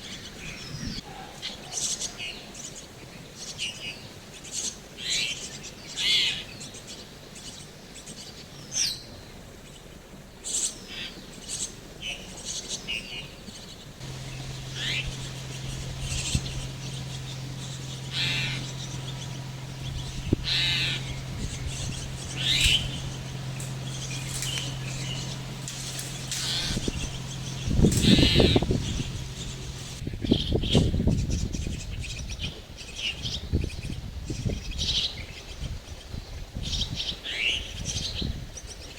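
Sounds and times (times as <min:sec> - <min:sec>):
birds giving harsh calls: 0:12.4 - 0:30.0
steady low hum: 0:13.7 - 0:30.0.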